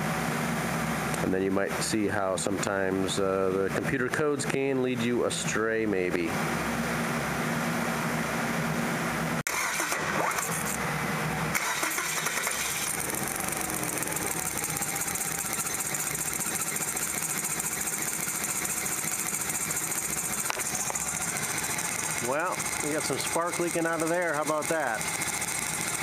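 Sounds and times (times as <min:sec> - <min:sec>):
car engine running with misfire: 0:09.5 - 0:26.0.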